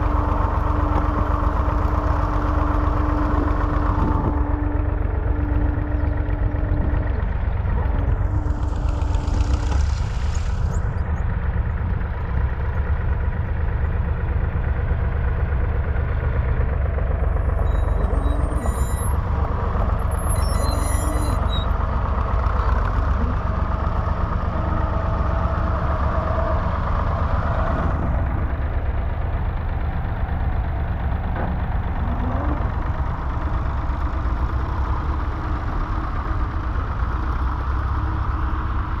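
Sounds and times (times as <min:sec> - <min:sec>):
diesel tractor engine running: 0:00.0 - 0:39.0.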